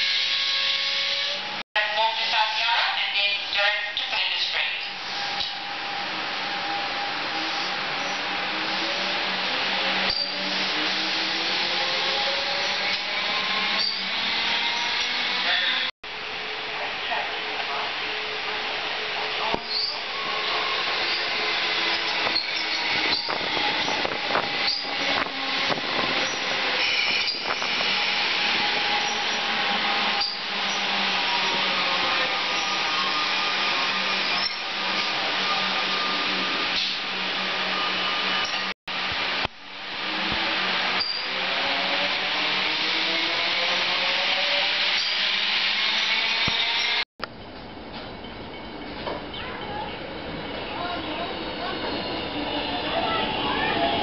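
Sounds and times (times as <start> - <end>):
electric train passing: 0.0 - 54.0
wheel squeals: 6.7 - 15.9, 19.5 - 38.7, 41.0 - 41.4, 43.6 - 47.0.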